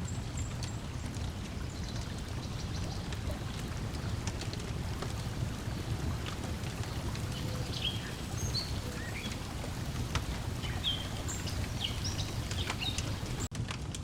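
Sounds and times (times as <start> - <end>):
lake water washing: 0.0 - 13.5
wood fire popping: 3.1 - 14.0
small birds chirping: 4.9 - 13.5.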